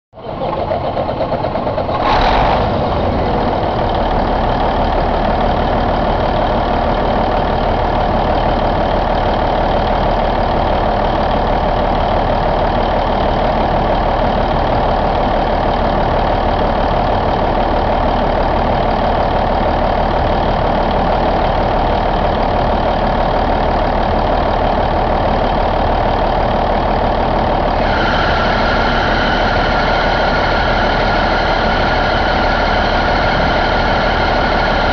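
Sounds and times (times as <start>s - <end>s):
diesel engine idling: 0.2s - 34.9s
high steady whine: 26.8s - 34.9s.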